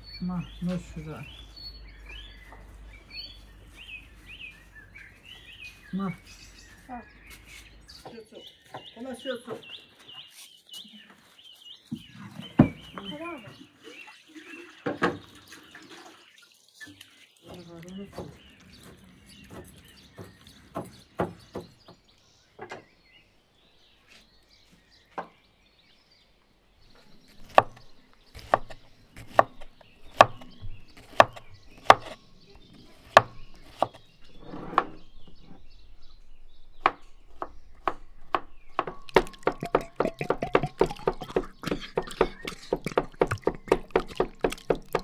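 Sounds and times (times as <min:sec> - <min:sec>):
knife knocking on wooden board: 0:38.4 - 0:45.0.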